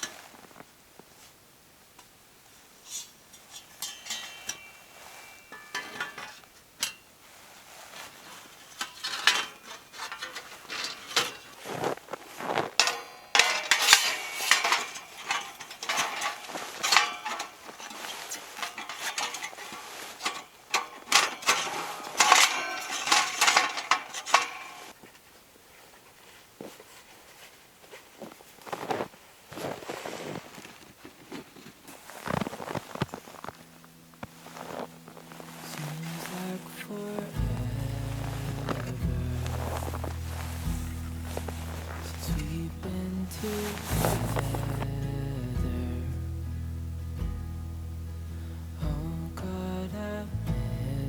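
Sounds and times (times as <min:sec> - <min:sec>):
metal cookware clinking and scraping: 0:02.9 - 0:07.1, 0:08.6 - 0:11.7, 0:12.8 - 0:25.0
metallic ringing: 0:03.6 - 0:07.1, 0:12.8 - 0:24.9.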